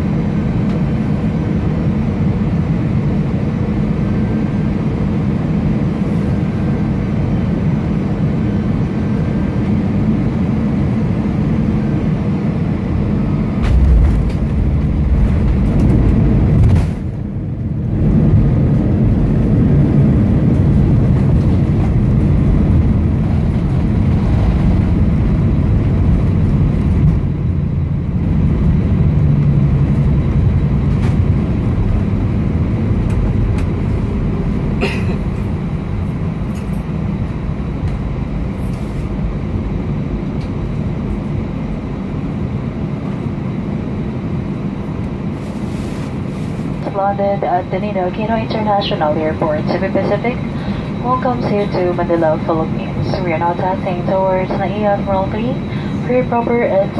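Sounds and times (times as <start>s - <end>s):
airliner cabin engine rumble: 0.0s - 56.9s
heavy low thumps: 13.0s - 29.0s.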